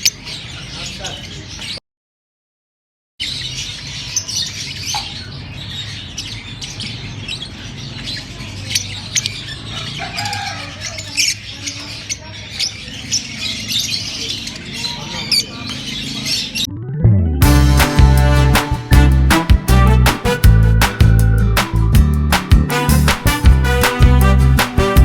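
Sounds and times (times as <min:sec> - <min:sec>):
lovebirds chirping and squawking: 0:00.0 - 0:01.8, 0:03.2 - 0:16.7
low hum: 0:16.7 - 0:21.6.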